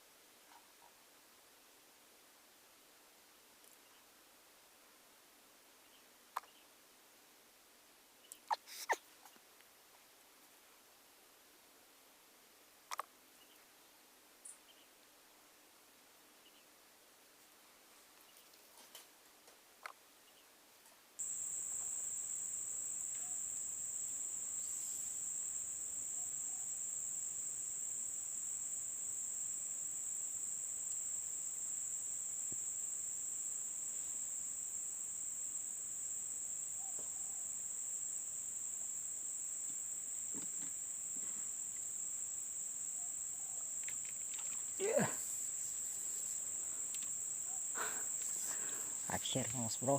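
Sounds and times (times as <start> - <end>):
crickets trilling: 21.2 - 49.9.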